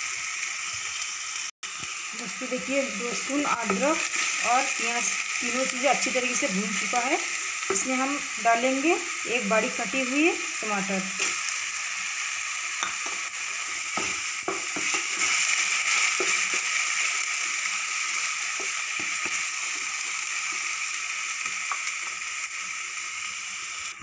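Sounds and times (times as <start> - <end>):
tomato sizzling in hot oil: 0.0 - 24.0
wooden spatula scraping a pan: 13.0 - 16.8.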